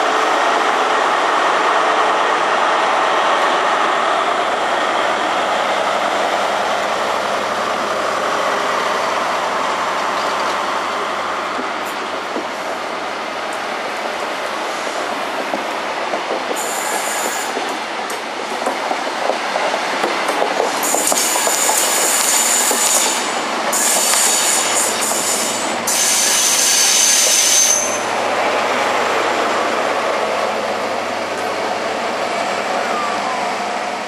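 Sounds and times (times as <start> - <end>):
train coaches rolling past: 0.0 - 34.0
train power car hum: 0.0 - 34.0
wheel squeals: 23.8 - 28.1.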